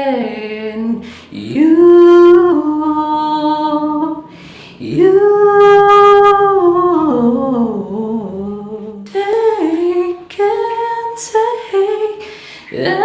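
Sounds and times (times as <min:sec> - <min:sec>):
breath: 0:01.0 - 0:01.3, 0:04.2 - 0:04.8, 0:12.2 - 0:12.7.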